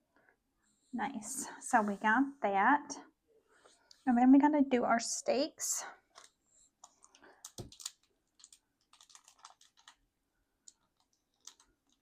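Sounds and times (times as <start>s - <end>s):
plastic pieces clicking and tapping: 7.0s - 10.0s, 10.6s - 12.0s.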